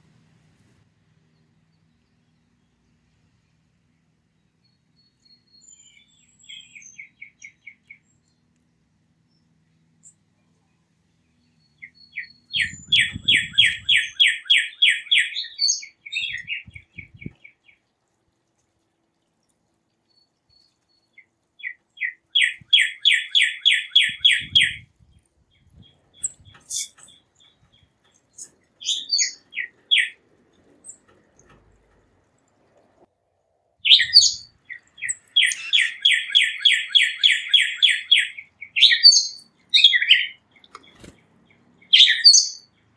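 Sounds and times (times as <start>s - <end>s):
songbird whistling song: 4.4s - 8.4s, 9.3s - 17.8s, 20.0s - 31.5s, 33.8s - 42.8s
high bird chirps: 4.6s - 8.3s, 11.2s - 17.8s, 20.1s - 31.5s, 33.8s - 41.1s, 41.8s - 42.7s.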